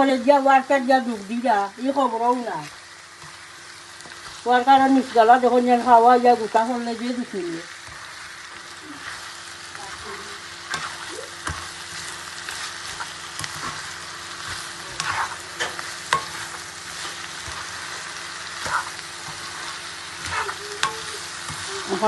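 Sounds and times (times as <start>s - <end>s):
food sizzling in hot oil: 0.0s - 22.0s
spatula scraping a pan: 7.7s - 22.0s.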